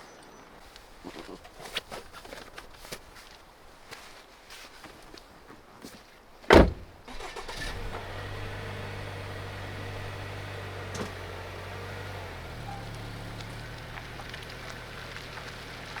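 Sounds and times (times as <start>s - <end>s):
loud thump: 6.5s - 7.0s.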